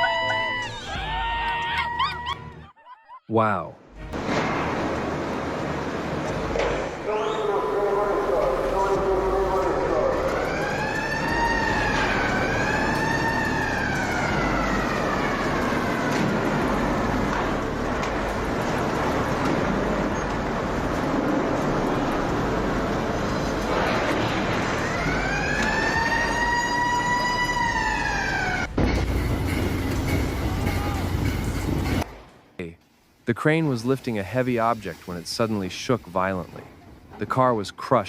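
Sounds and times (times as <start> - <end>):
steady rushing background noise: 3.9 - 38.0
siren wailing: 7.1 - 17.3, 24.5 - 28.7.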